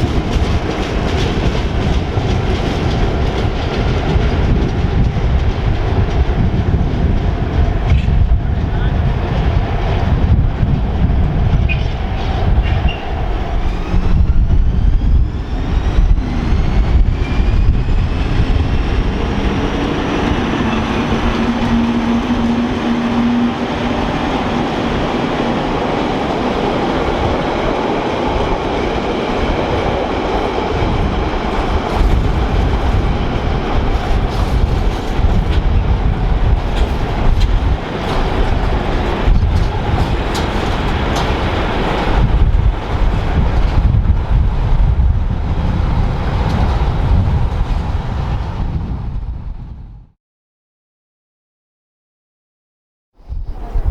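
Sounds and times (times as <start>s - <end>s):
wheels clicking over rail joints: 0.0s - 7.3s, 30.3s - 44.0s
train rumbling: 0.0s - 50.1s, 53.2s - 53.9s.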